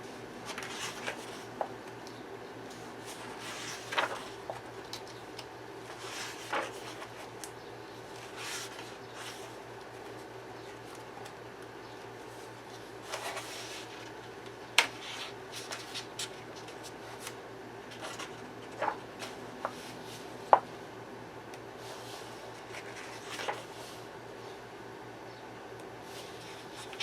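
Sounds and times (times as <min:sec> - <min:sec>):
paper pages rustling: 0:00.4 - 0:01.6, 0:02.7 - 0:07.5, 0:08.1 - 0:11.4, 0:12.3 - 0:14.2, 0:14.8 - 0:20.6, 0:21.9 - 0:24.0, 0:26.2 - 0:27.0.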